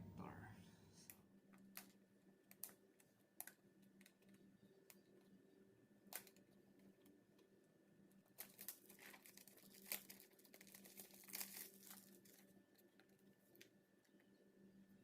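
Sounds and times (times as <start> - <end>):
packaging crinkling and rustling: 8.2 - 13.8.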